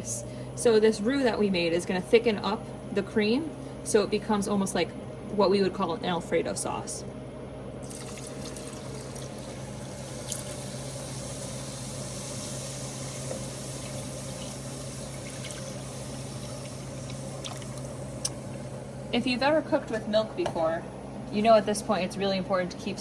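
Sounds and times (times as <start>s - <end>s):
cream pouring into pot: 7.8s - 18.6s.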